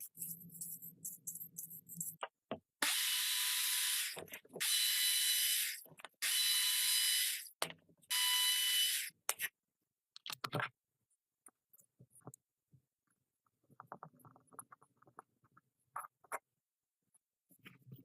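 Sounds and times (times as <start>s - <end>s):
faint clicks and knocks: 11.4s - 16.5s.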